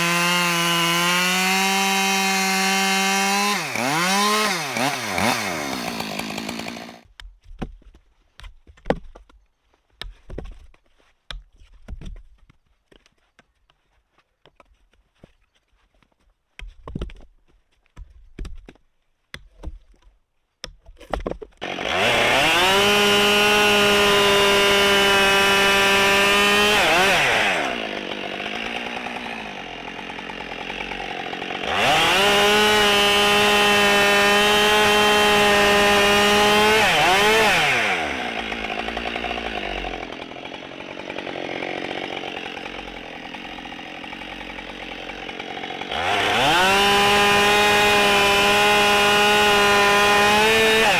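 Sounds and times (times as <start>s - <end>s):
chainsaw revving and idling: 0.0s - 7.1s, 21.6s - 50.9s.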